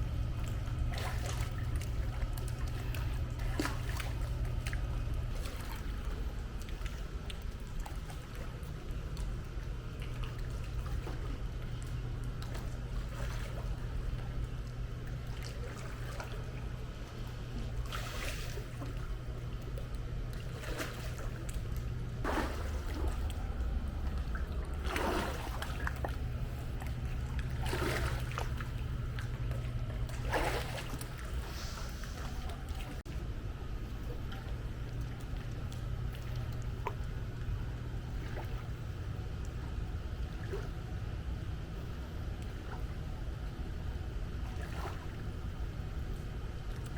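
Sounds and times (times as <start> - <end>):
pool water trickling: 0.0 - 46.9
steady low hum: 0.0 - 46.9
sharp water splashes: 20.3 - 33.0.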